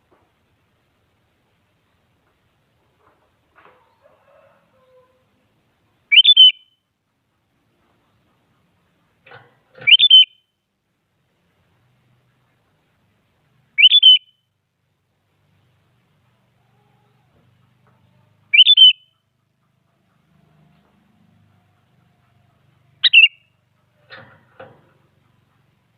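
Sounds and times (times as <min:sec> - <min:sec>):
bird calling with whistled notes: 0:06.1 - 0:06.8, 0:09.8 - 0:10.6, 0:13.8 - 0:14.5, 0:18.5 - 0:19.3, 0:23.0 - 0:23.6.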